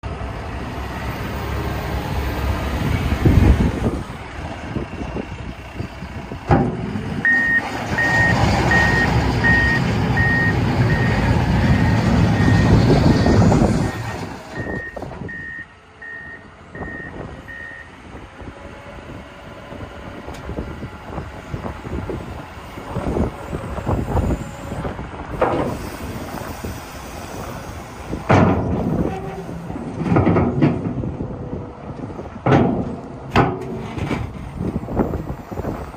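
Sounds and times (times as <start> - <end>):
wheel loader diesel engine: 0.0 - 35.9
knocks and clunks: 6.4 - 10.4, 28.2 - 35.1
reverse alarm beeps: 7.2 - 14.0, 14.6 - 17.9.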